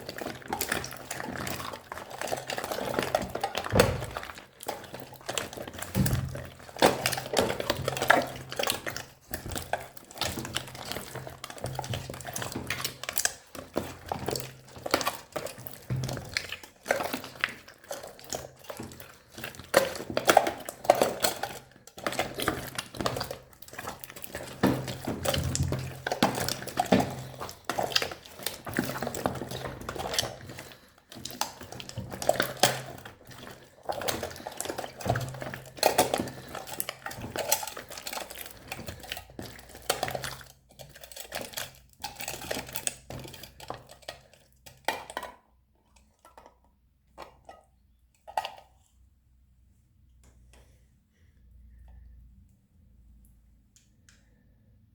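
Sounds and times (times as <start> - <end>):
slime squishing with wet crackles: 0.0 - 54.9.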